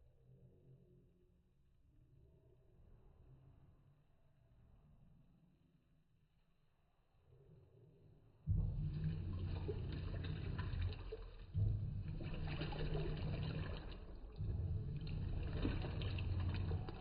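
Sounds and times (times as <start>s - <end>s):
water sloshing in tub: 8.5s - 17.0s
washing machine motor humming: 8.7s - 17.0s.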